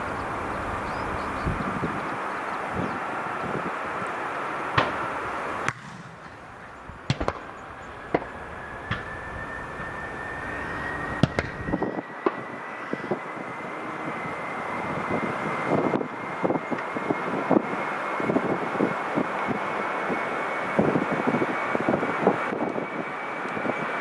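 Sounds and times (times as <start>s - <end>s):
jet engines spooling up: 0.0s - 24.0s
sharp cracks: 4.7s - 11.8s.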